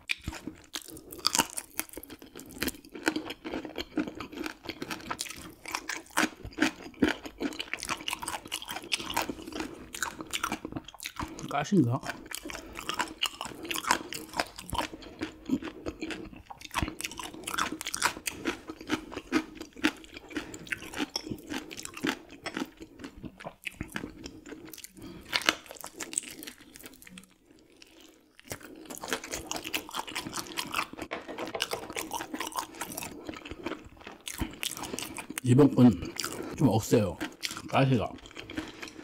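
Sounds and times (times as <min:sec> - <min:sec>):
crunchy chewing of fish bones: 0:00.0 - 0:39.0.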